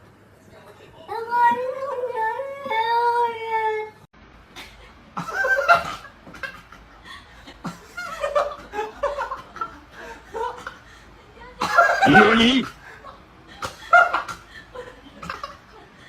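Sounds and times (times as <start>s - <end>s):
people laughing: 4.6s - 16.0s.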